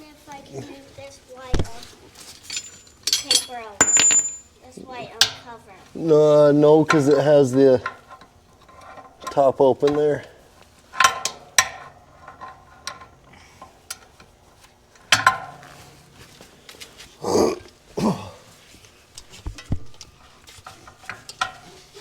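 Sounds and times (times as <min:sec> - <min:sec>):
hand tools and metal clanking: 0:01.6 - 0:22.0
low grunts: 0:17.2 - 0:18.6.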